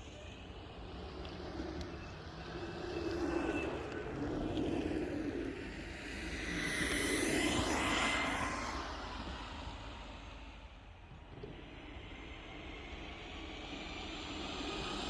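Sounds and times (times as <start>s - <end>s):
wheels rolling on pavement: 0.0s - 6.0s
electric skateboard motors whining: 0.1s - 5.6s.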